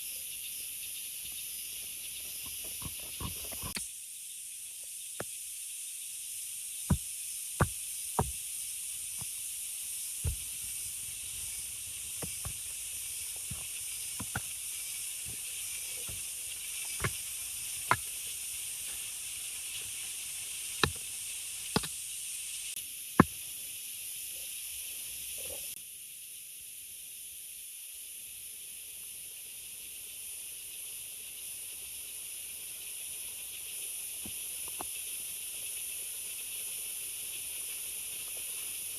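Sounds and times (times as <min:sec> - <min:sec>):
sharp taps or knocks: 0:07.6 - 0:08.4.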